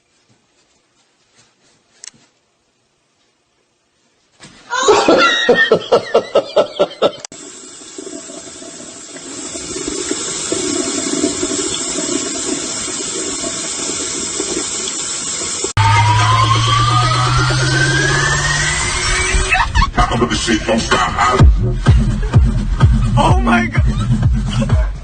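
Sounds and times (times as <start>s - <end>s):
person laughing in bursts: 4.7s - 7.3s, 19.2s - 20.3s, 21.0s - 25.0s
running water rushing: 7.3s - 19.6s.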